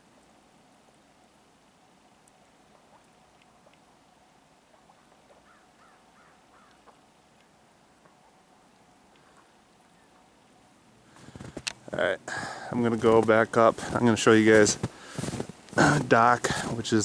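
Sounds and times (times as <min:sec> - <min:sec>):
faint bird calls: 0:04.7 - 0:07.6.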